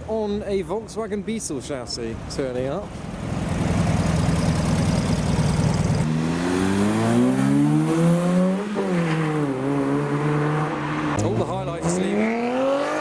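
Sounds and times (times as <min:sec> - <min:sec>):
car engine accelerating: 0:03.3 - 0:13.0.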